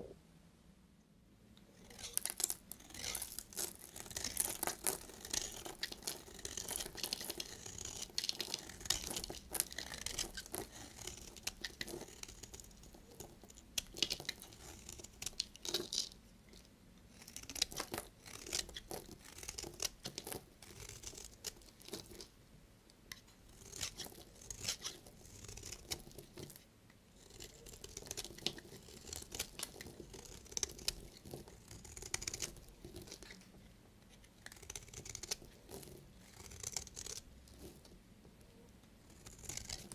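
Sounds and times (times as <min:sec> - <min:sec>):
knife cutting dry soap: 0:01.8 - 0:16.1, 0:17.1 - 0:22.3, 0:23.1 - 0:26.6, 0:27.2 - 0:33.4, 0:34.0 - 0:37.8, 0:39.1 - 0:39.9.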